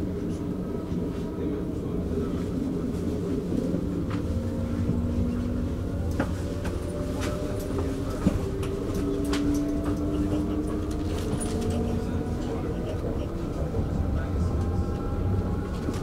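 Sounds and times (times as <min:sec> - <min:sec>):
train rumble from on board: 0:00.0 - 0:16.0.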